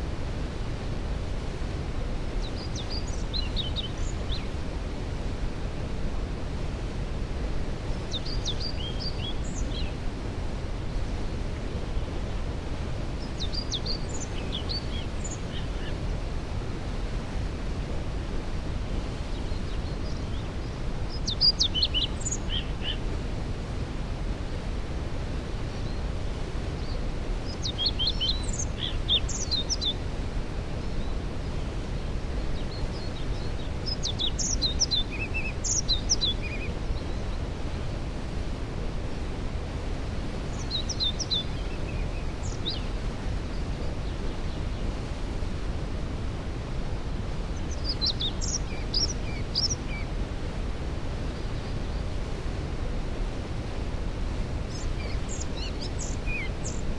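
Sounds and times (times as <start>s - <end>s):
songbird singing: 2.0s - 4.6s, 7.8s - 10.0s, 12.0s - 16.2s, 19.1s - 23.1s, 25.4s - 37.8s, 40.3s - 45.1s, 47.4s - 50.2s, 53.5s - 56.9s.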